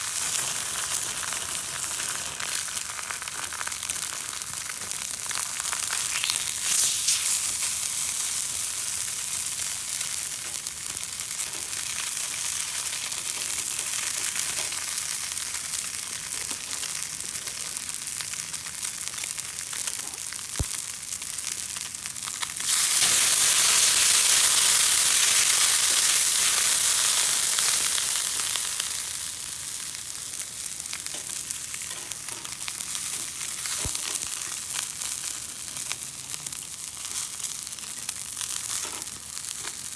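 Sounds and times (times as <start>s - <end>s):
food sizzling in oil: 0.0s - 39.9s.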